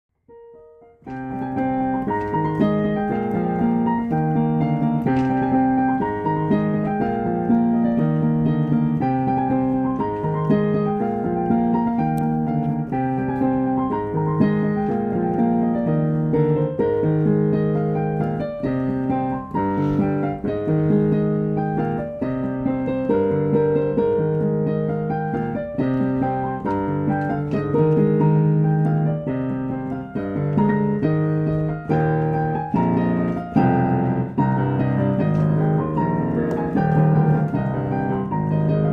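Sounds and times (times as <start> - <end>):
piano melody over chords: 0.1 - 38.9.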